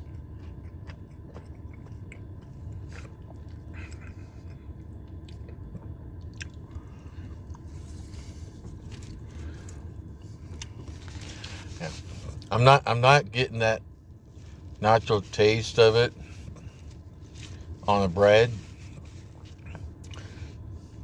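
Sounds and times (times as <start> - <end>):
mouth clicks and crunches: 0.0 - 6.9, 10.4 - 12.5
person chewing: 0.0 - 12.5, 18.5 - 20.6
steady low hum: 0.0 - 21.0.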